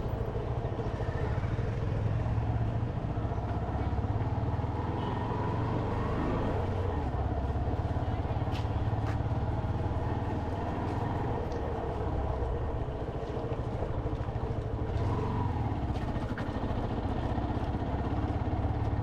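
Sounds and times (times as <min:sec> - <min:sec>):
motorcycle engine running: 0:06.6 - 0:19.0.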